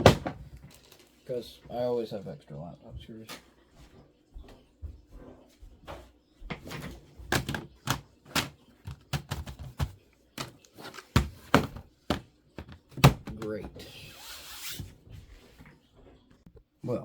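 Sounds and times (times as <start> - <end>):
plastic case knocks: 7.3 - 13.8.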